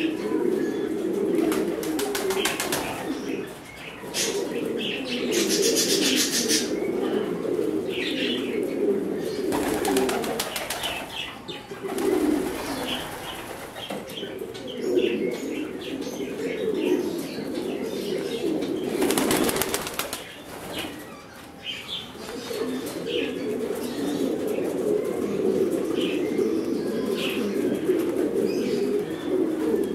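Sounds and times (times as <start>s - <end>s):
pigeons cooing: 0.0s - 29.9s
wings flapping: 1.4s - 3.0s, 9.5s - 11.1s, 18.9s - 21.0s.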